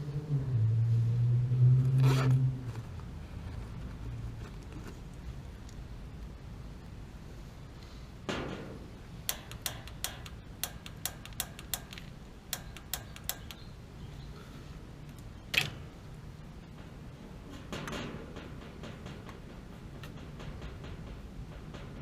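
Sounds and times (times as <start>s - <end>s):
rustle: 0.0s - 9.3s, 13.6s - 22.0s
piezo igniter clicking: 9.2s - 13.8s.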